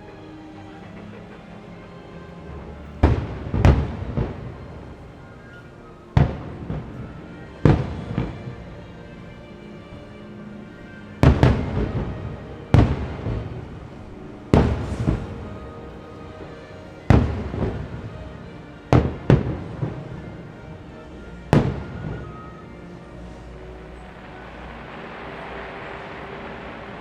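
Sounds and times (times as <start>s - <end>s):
firework crackle and echo: 0.0s - 27.0s
firework shells bursting: 23.3s - 27.0s.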